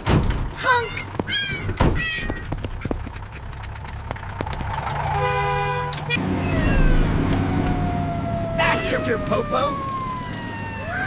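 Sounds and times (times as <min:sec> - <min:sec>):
cartoon engine rumbling: 0:00.6 - 0:11.0
horn honk: 0:05.1 - 0:06.2.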